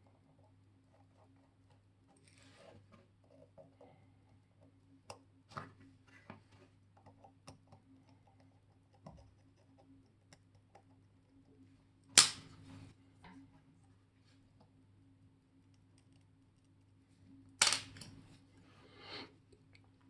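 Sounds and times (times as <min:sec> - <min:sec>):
loud sharp clack: 0:12.2 - 0:12.4.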